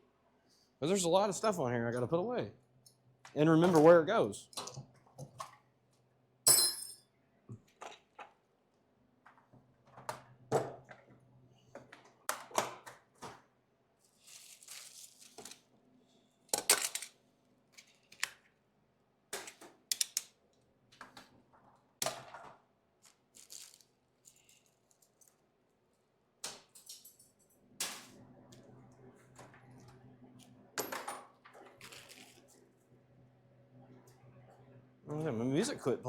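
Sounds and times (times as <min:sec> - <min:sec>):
metal tools clinking: 0:06.5 - 0:07.0.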